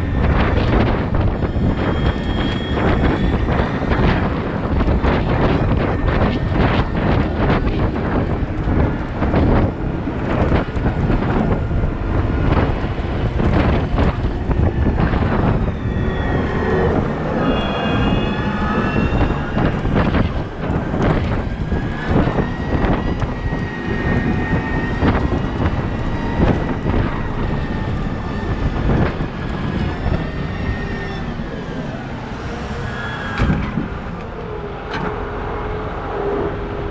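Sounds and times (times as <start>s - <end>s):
diesel engines running: 0.0s - 36.9s
high machine whines: 0.0s - 36.9s
machinery clanks and knocks: 32.4s - 35.2s.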